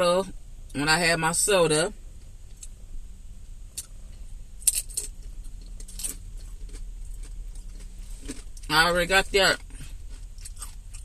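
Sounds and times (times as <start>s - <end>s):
chewing crunchy chip: 4.6s - 8.7s, 9.6s - 11.0s.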